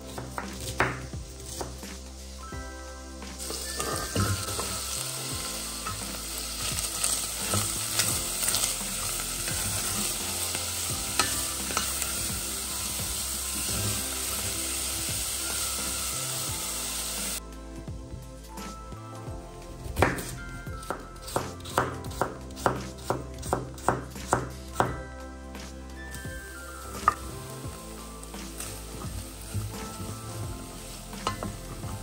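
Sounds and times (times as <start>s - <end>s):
meat and onion sizzling: 0.0s - 17.4s, 19.7s - 25.0s, 25.6s - 32.0s
wooden spatula scraping pot: 3.4s - 5.0s.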